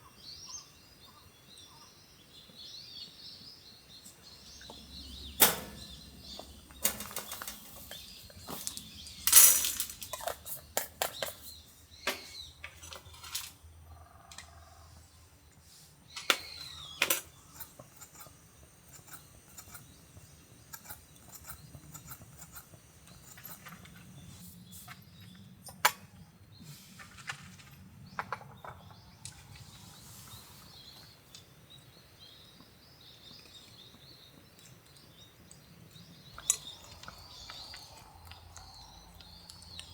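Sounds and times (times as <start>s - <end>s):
faint birds chirping: 0.0s - 39.9s
clicks and knocks of handled objects: 5.4s - 13.6s.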